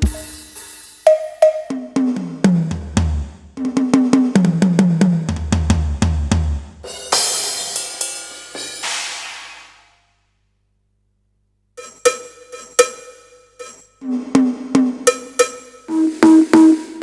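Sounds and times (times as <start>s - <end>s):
cymbal crash ringing: 0.0s - 1.6s, 6.9s - 10.1s, 11.8s - 14.1s, 15.1s - 17.0s.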